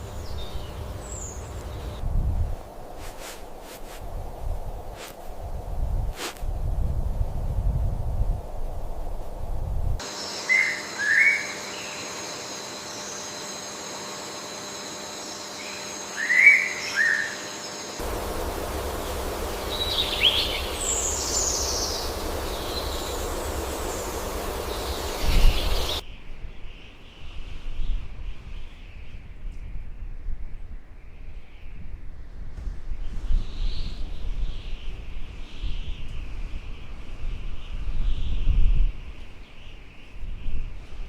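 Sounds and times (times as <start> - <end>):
birds chirping and trilling: 0.0 - 2.0, 10.1 - 13.8, 15.1 - 26.0
outdoor ambience: 0.0 - 30.0, 30.8 - 41.0
steady high whine: 10.0 - 26.0.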